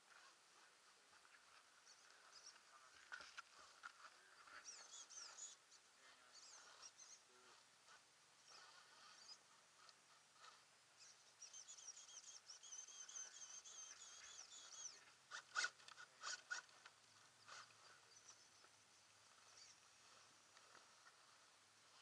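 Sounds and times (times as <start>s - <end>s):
bird warbling song: 4.1s - 7.6s, 8.4s - 9.5s, 11.0s - 16.6s, 19.4s - 20.0s.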